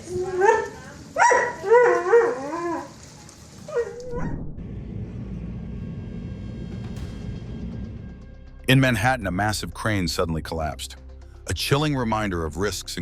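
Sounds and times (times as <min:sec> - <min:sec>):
dog barking and whining: 0:00.0 - 0:02.9, 0:03.7 - 0:04.5
low rumbling noise: 0:04.0 - 0:10.1.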